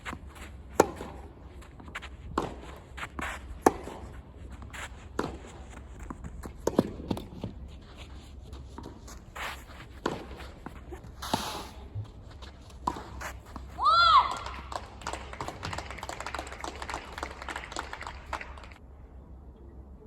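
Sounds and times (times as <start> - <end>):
racket striking tennis ball: 0.0 - 7.6, 8.8 - 15.8
players' footsteps: 0.0 - 18.8
tennis ball bouncing: 0.1 - 7.7, 8.7 - 16.5.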